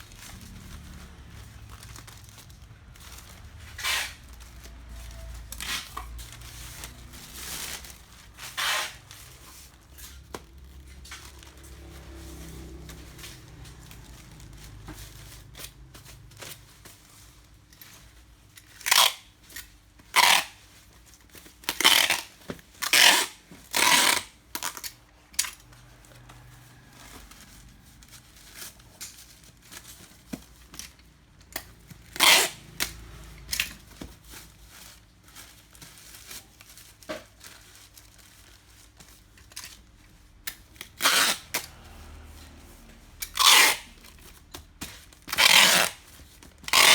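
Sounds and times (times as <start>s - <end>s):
packaging ripping: 0.0s - 9.3s, 43.3s - 44.4s, 45.0s - 46.9s.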